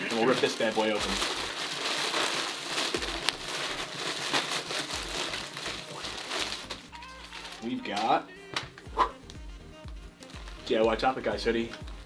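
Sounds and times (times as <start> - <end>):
package wrapping tearing: 0.0 - 9.4, 10.2 - 12.0.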